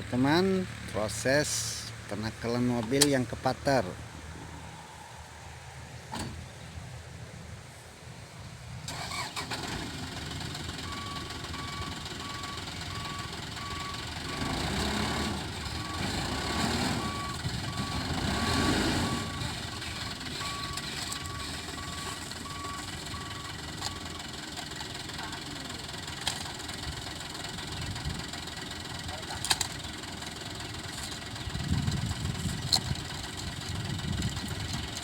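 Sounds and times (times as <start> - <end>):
diesel truck engine running: 0.0 - 7.2, 8.8 - 35.0
reversing alarm beeping: 10.8 - 24.3.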